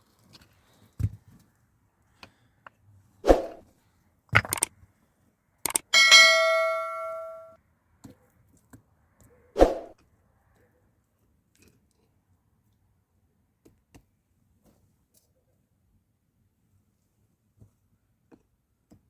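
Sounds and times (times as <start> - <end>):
knocks of hard objects handled: 4.4 - 4.7
metallic clang ringing: 5.8 - 7.6.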